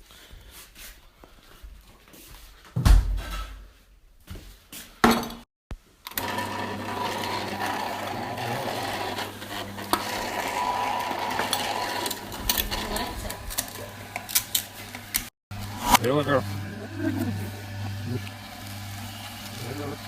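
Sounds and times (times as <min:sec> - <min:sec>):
blender running: 0:06.1 - 0:20.0.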